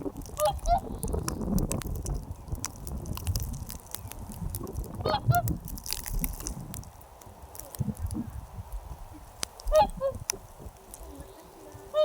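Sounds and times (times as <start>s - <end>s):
geese honking: 0.4s - 0.9s, 5.0s - 5.4s, 9.7s - 10.2s, 11.1s - 12.0s.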